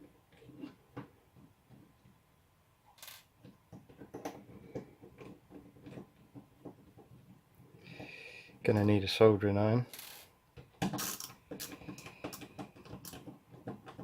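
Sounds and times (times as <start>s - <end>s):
plastic casing parts handled: 10.6s - 14.0s.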